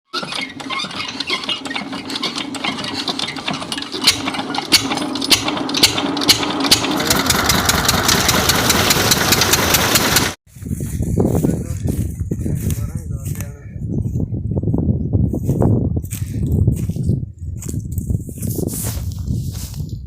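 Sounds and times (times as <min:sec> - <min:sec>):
diesel pump engine knocking: 0:01.8 - 0:10.4.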